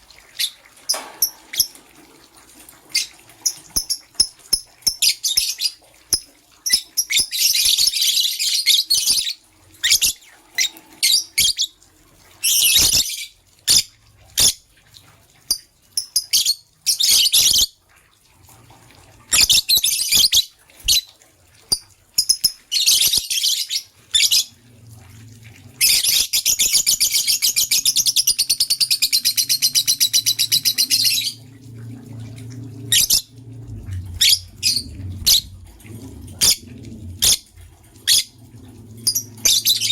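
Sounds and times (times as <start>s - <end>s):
faint low hum: 30.3s - 39.9s.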